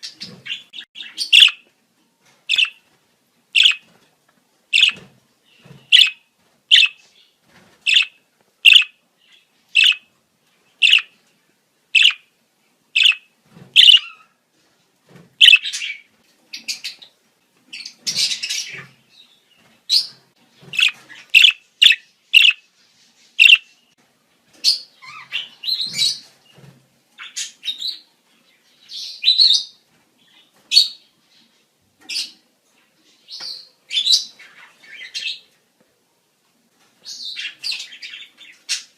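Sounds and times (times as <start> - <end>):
budgerigars chirping: 0.0 - 1.6, 2.5 - 2.8, 3.6 - 3.9, 4.8 - 5.0, 5.8 - 7.0, 7.9 - 9.0, 9.7 - 10.1, 10.8 - 11.1, 12.0 - 12.2, 13.0 - 14.3, 15.4 - 16.0, 20.7 - 22.6, 23.4 - 23.7.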